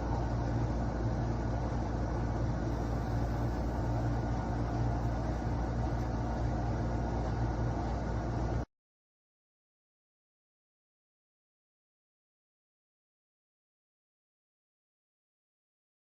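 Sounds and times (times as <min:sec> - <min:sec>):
low mechanical hum: 0:00.0 - 0:08.7.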